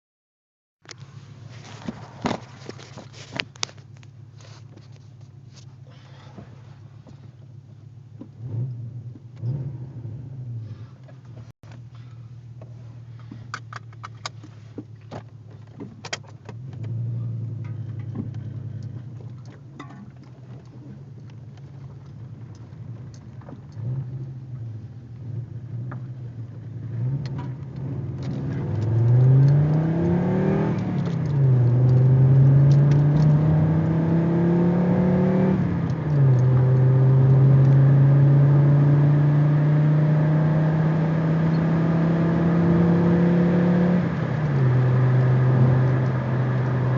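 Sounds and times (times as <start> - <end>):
car engine revving: 8.2 - 11.0, 20.8 - 46.9.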